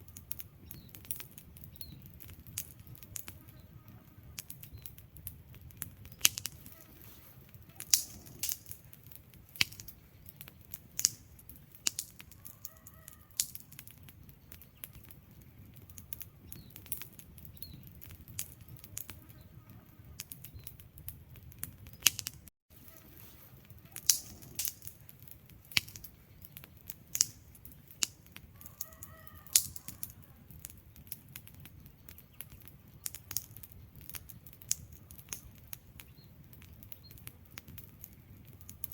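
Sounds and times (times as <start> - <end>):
low rumble of flame: 0.0 - 38.9
wood fire crackling: 0.0 - 38.9.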